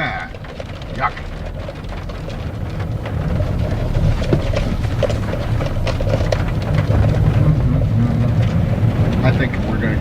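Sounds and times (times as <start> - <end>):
car engine and road noise: 0.0 - 10.0
rain ticking on car body: 0.0 - 10.0.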